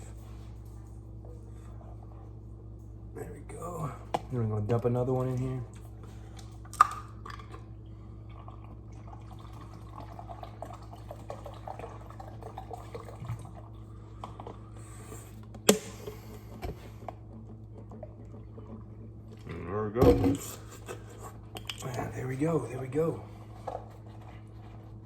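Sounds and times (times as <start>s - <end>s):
water pouring into reservoir: 8.2s - 14.2s.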